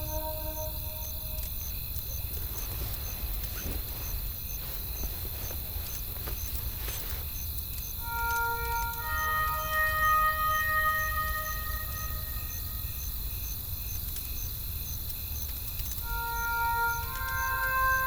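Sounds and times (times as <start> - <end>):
held music note: 0.0 - 1.7, 8.0 - 13.0, 16.0 - 18.0
low wind rumble: 0.0 - 18.0
faint high chirp: 16.0 - 18.0.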